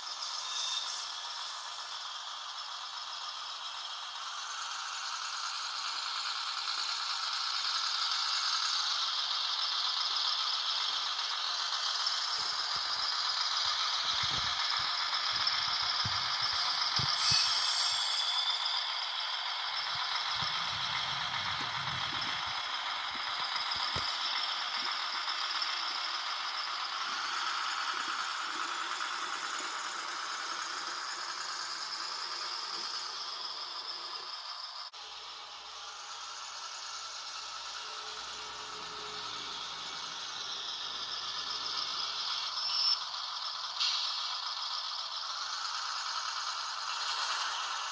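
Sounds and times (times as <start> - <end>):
model vehicle mechanical rattling: 0.0 - 47.9.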